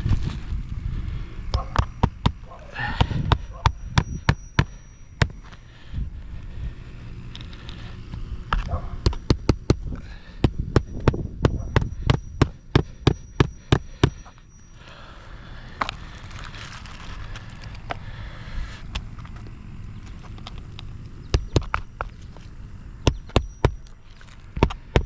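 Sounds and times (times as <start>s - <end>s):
hammer striking roofing nails: 1.5s - 5.4s, 9.0s - 14.3s, 21.3s - 21.8s, 23.0s - 23.9s, 24.6s - 25.0s.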